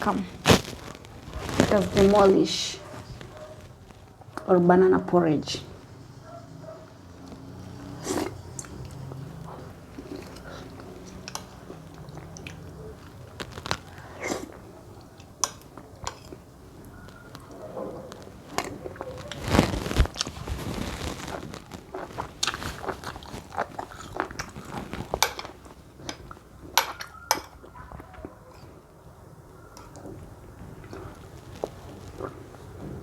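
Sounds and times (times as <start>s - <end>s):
chewing and mouth sounds: 7.2s - 20.3s, 21.0s - 28.8s, 29.8s - 32.7s.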